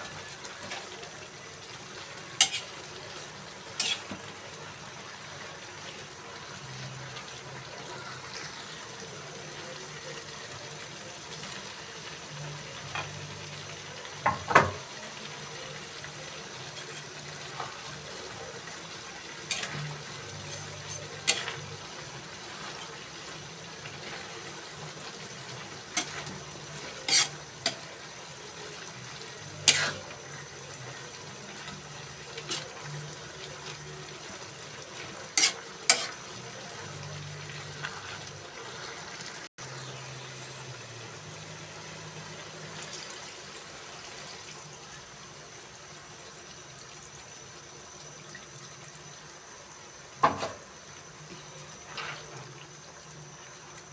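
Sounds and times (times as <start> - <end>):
pot sizzling and bubbling: 0.0 - 53.9
spoon scraping a pot: 2.4 - 2.7, 3.8 - 4.2, 19.5 - 21.7, 23.9 - 27.9, 29.6 - 30.2, 35.3 - 36.2.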